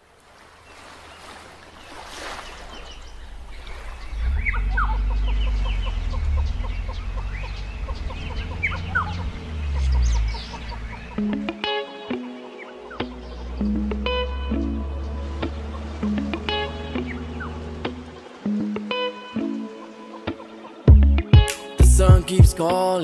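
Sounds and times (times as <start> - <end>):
birds chirping and calling: 0.6 - 20.9
steady low rumble: 2.9 - 11.3.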